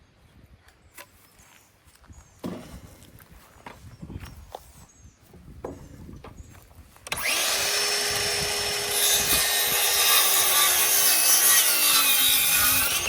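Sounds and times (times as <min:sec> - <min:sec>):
power saw cutting wood: 0:07.1 - 0:13.0.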